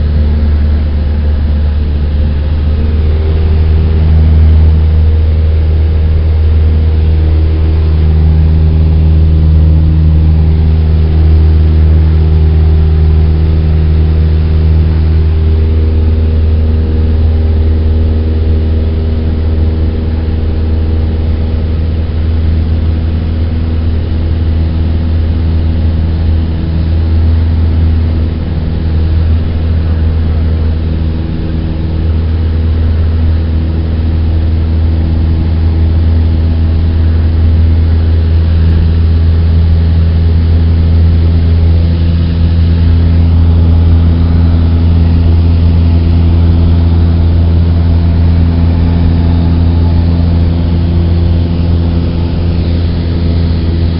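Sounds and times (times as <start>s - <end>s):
propeller plane engine drone: 0.0s - 53.9s.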